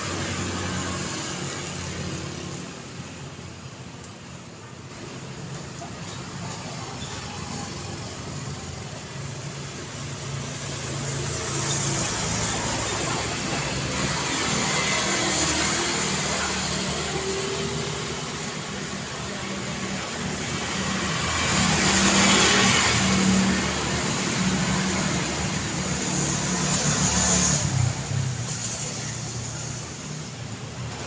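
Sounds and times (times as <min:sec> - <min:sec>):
passing cars: 0:06.3 - 0:31.0.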